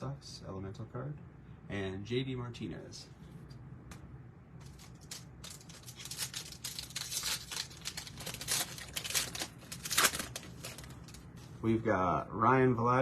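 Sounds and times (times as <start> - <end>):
wrapper crinkling and tearing: 4.6 - 11.2.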